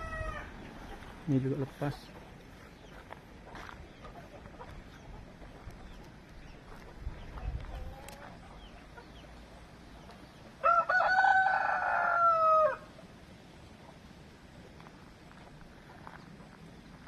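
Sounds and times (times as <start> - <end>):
rooster crowing: 0.0 - 0.6, 10.6 - 12.9.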